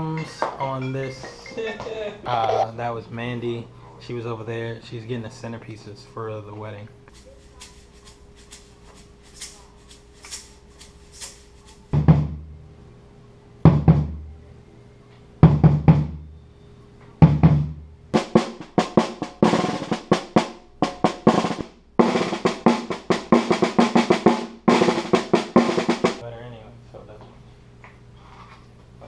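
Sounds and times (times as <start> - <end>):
drum kit playing: 0.0 - 2.7, 10.2 - 12.6, 13.6 - 14.4, 15.4 - 16.2, 17.2 - 26.2.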